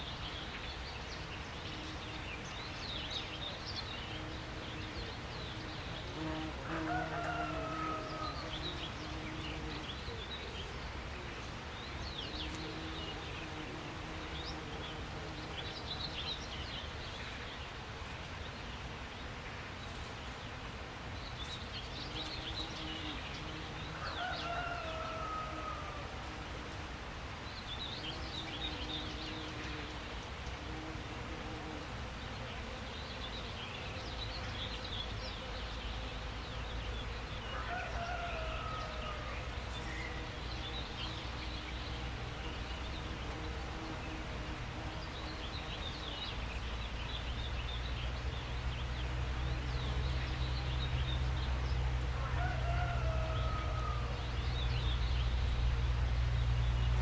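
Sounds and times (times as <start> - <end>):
birds chirping and twittering: 21.2 - 25.8, 32.2 - 57.0.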